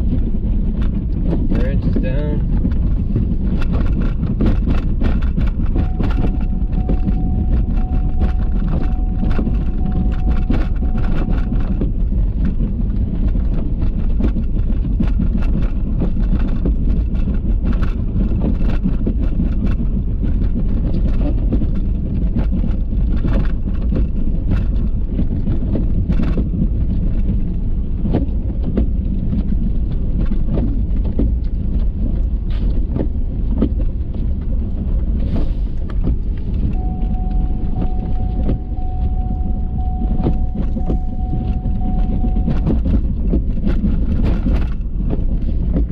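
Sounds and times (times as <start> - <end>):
knocks and rattles: 0.0 - 45.9
pickup truck engine rumble: 0.0 - 45.9
faint steady tone: 5.8 - 11.8, 36.8 - 43.0.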